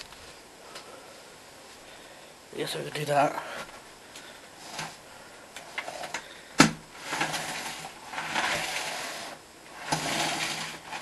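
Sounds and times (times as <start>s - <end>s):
rustling and scraping: 4.5s - 5.0s, 5.6s - 6.3s, 6.9s - 11.0s.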